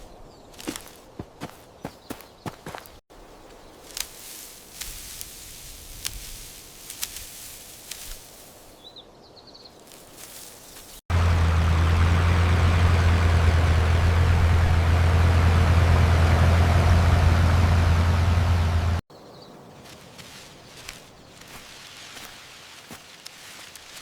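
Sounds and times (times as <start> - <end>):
motor idling rumble: 11.1 - 19.0.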